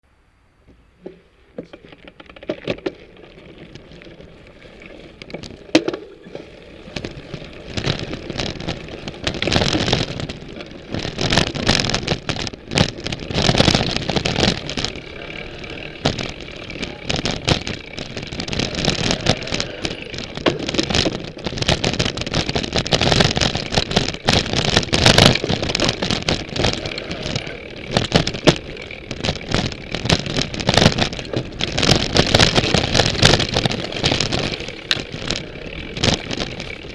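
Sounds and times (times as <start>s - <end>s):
tyres rolling on trail: 0.0s - 36.9s
bicycle chain and frame rattling: 1.0s - 36.9s.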